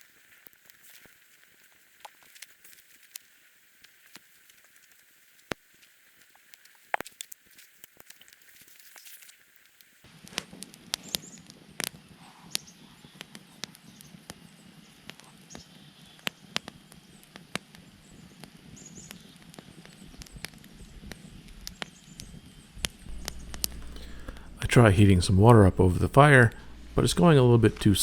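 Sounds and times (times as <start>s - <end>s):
campfire crackling: 23.0s - 28.0s
low fire hiss: 23.0s - 28.0s
burning wood popping: 23.1s - 28.0s.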